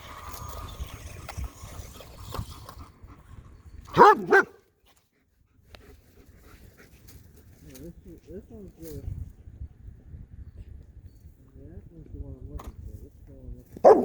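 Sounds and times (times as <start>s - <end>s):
dog barking: 4.0s - 4.6s, 13.8s - 14.0s.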